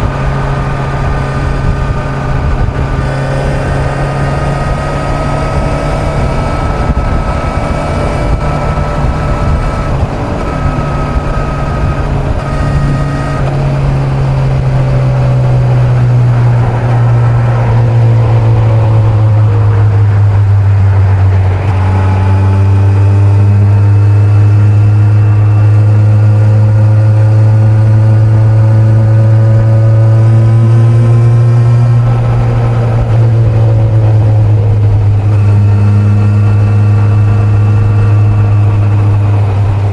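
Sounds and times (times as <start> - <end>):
wind rush: 0.0 - 26.8
motorcycle engine at speed: 0.0 - 39.9.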